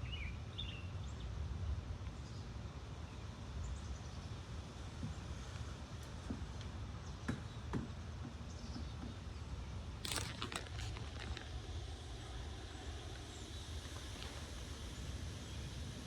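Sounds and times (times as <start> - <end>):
crackles: 10.0 - 15.8.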